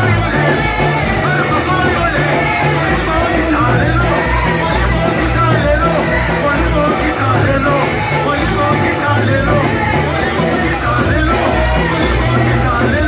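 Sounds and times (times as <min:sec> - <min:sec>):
worship band music: 0:00.0 - 0:13.0.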